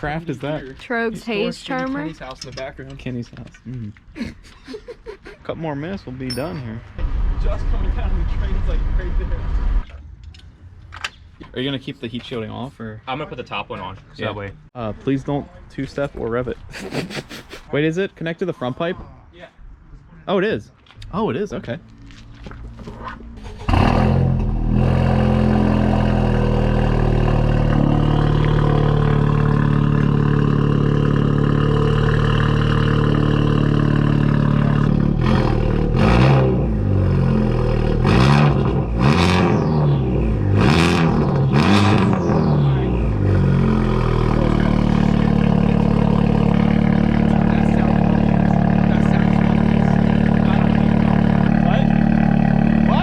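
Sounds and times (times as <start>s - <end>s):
car engine starting and idling: 23.3s - 53.0s
engine revving: 23.4s - 53.0s.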